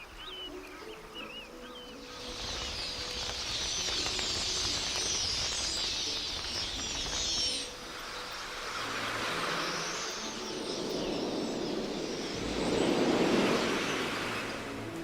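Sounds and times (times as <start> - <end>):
birds chattering: 0.0 - 14.9
low rumble: 8.9 - 15.0.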